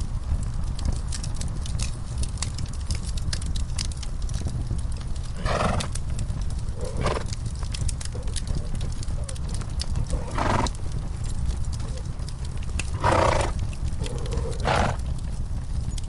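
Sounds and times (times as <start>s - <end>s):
fireplace crackling: 0.0s - 16.0s
low rumble: 0.0s - 16.0s
horses making short vocal sounds: 5.4s - 5.9s, 6.8s - 7.3s, 10.0s - 10.7s, 12.9s - 15.1s.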